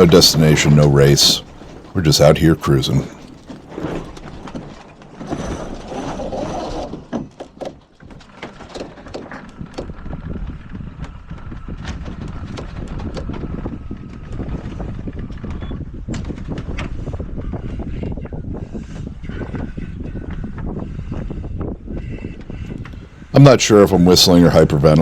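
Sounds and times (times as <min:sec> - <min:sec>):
wind noise on microphone: 0:00.0 - 0:25.0
deck hardware clicks and knocks: 0:06.9 - 0:11.1.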